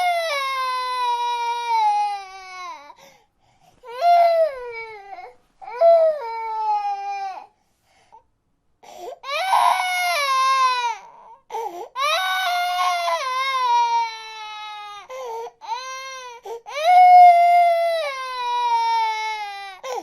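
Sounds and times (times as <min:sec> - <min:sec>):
infant crying: 0:00.0 - 0:03.1, 0:03.8 - 0:07.5, 0:08.8 - 0:20.0
infant gasping breaths: 0:03.0 - 0:03.9, 0:11.5 - 0:12.0.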